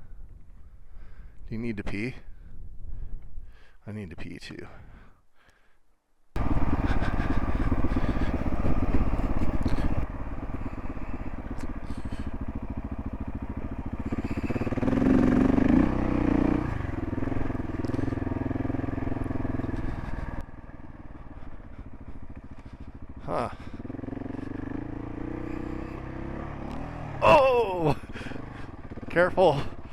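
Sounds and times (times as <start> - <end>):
motorcycle engine running: 6.4 - 29.9.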